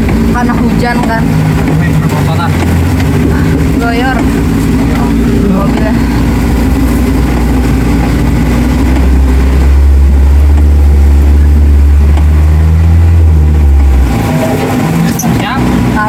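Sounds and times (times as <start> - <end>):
engine running at steady revs: 0.0 - 16.0.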